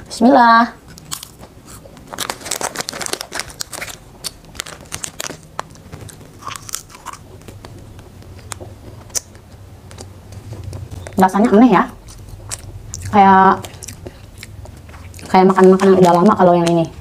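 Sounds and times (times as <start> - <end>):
crunchy snack chewing: 0.8 - 11.2, 12.0 - 17.0.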